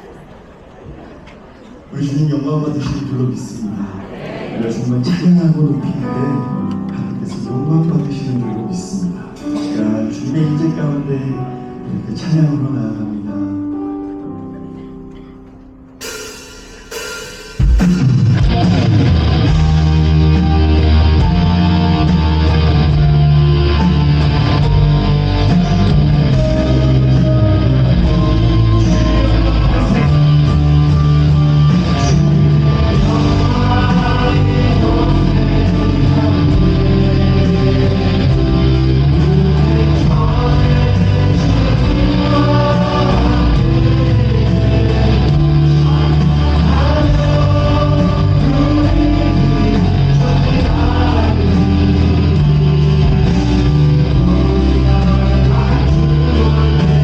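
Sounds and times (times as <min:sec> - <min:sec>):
drums: 0:16.0 - 0:57.0
bass guitar: 0:17.6 - 0:57.0
electric guitar: 0:18.1 - 0:57.0
people singing: 0:23.8 - 0:57.0.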